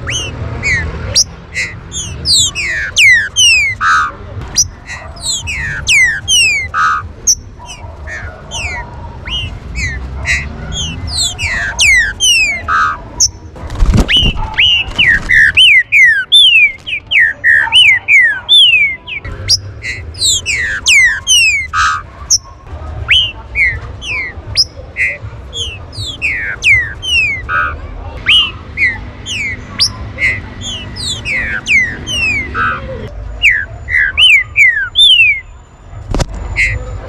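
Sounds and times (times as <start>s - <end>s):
birds whistling and chipping: 0.0s - 37.0s.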